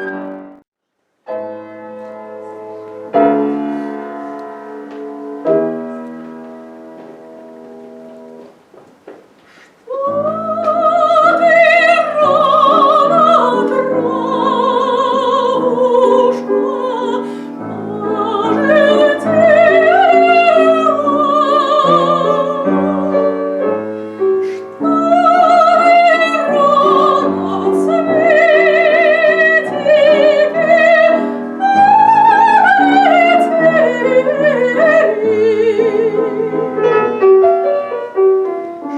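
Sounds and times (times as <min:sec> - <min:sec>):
piano chord: 0:00.0 - 0:08.5
piano accompaniment: 0:00.0 - 0:38.9
classical singer with vibrato: 0:09.8 - 0:38.1.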